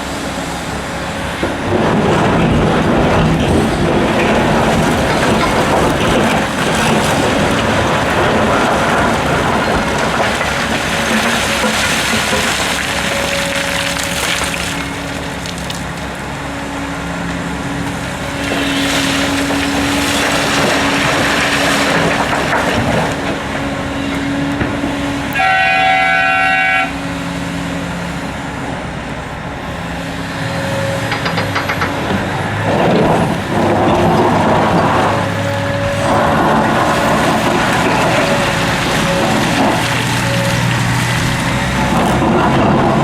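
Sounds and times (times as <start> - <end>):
diesel machinery running: 0.0 - 43.0
horn blast: 25.3 - 27.0.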